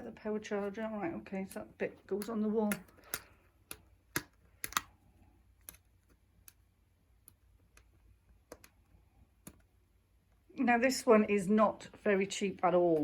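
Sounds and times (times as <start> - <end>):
hard plastic parts clicking: 2.0 - 5.0.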